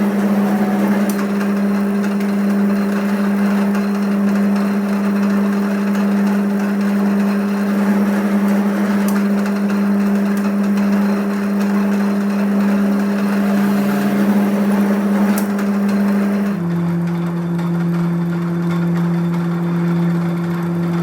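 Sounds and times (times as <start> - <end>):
electric motor humming: 0.0 - 16.7.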